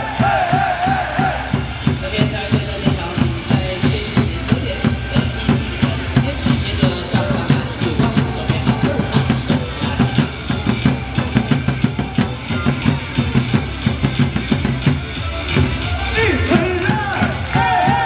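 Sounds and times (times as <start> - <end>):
drums pounding cheer beat: 0.0 - 18.0.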